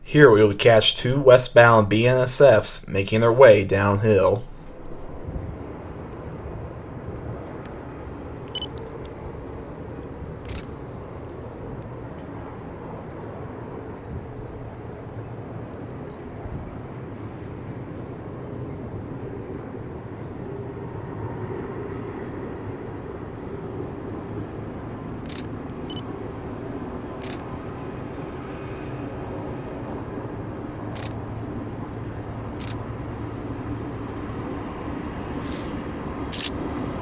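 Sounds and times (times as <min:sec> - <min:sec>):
sharp thin clicks: 0:10.4 - 0:10.7, 0:36.3 - 0:36.6.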